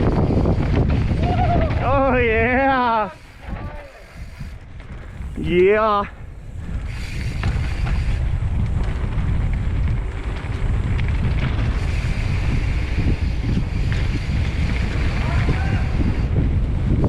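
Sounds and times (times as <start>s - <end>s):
bike clicks and rattles: 0.0s - 17.0s
low rumble of bike tyres: 0.0s - 17.0s
wind buffeting microphone: 0.0s - 17.0s.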